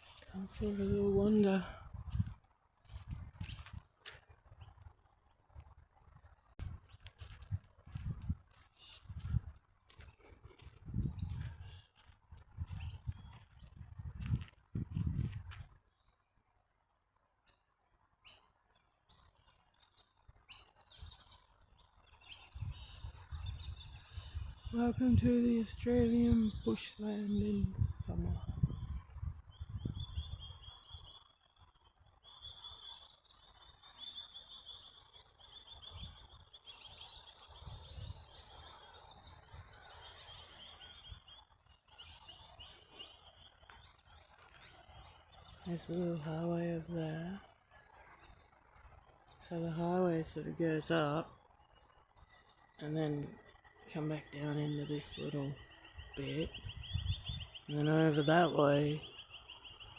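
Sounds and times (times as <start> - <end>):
low muffled noise: 0.0 - 15.9
soft low rumbles: 0.0 - 15.9, 22.4 - 31.1
faint bush ambience: 0.0 - 59.9
sharp bird chirps: 17.5 - 25.1, 26.2 - 59.9.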